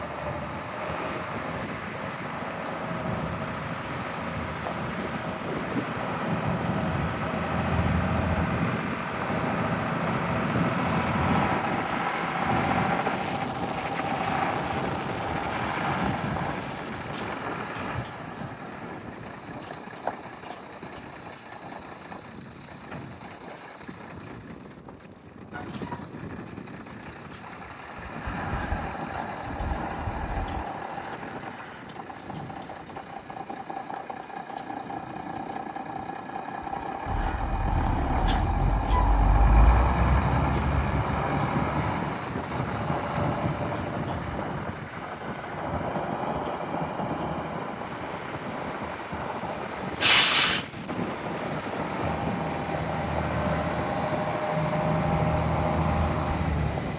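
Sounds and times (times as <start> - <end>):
truck engine running: 26.2 - 50.0, 50.9 - 56.9.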